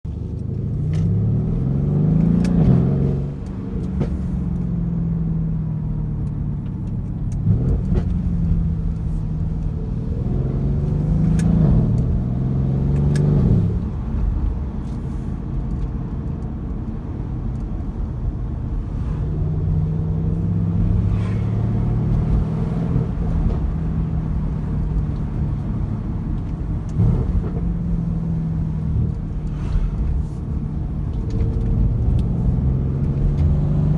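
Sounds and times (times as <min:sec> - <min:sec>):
car engine accelerating: 0:00.1 - 0:33.9
exhaust crackles and pops: 0:06.0 - 0:21.3, 0:22.1 - 0:33.9.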